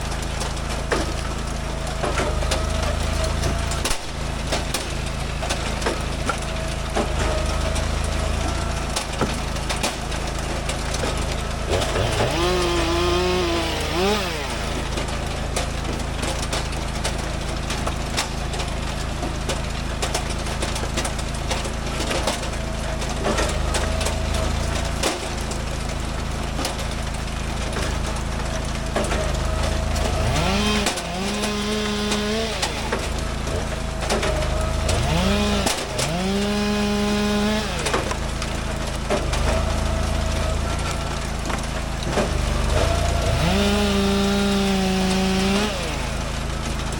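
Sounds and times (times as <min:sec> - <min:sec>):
chainsaw cutting logs: 0:00.0 - 0:46.9
engine running steadily: 0:00.0 - 0:46.9.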